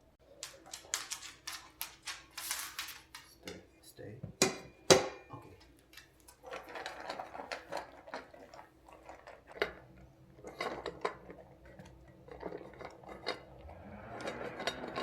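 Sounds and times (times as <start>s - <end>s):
dishware clinking: 4.4s - 5.3s.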